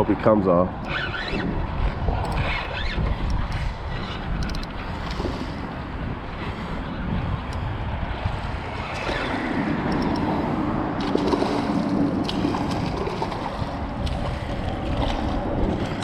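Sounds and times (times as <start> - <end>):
water noise: 0.0 - 16.0
wind buffeting microphone: 0.0 - 16.0
light clicks: 2.2 - 2.5, 4.4 - 5.2, 9.9 - 10.3.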